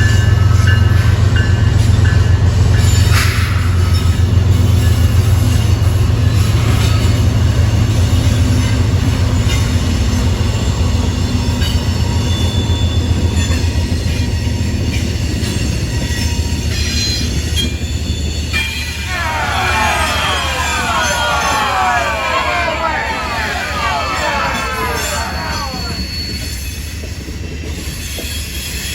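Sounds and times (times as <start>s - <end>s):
train wheels on rail: 0.0s - 28.9s.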